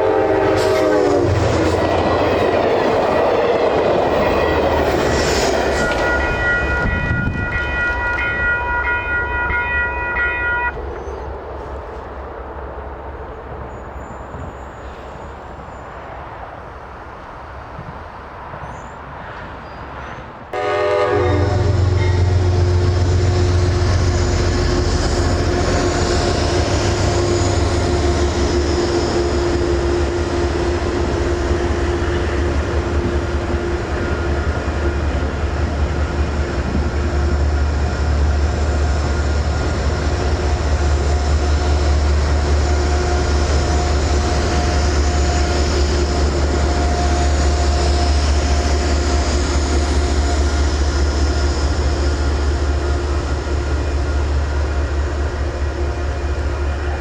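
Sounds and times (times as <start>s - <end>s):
rail and wheel noise: 0.0s - 57.0s
locomotive low drone: 20.5s - 57.0s.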